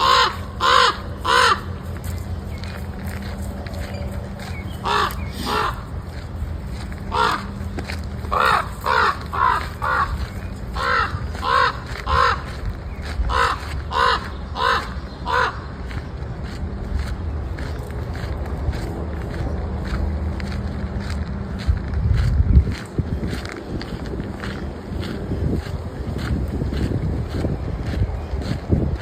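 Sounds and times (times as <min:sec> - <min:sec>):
crows cawing: 0:00.0 - 0:02.5, 0:04.4 - 0:15.9
steady low rumble: 0:00.0 - 0:29.0.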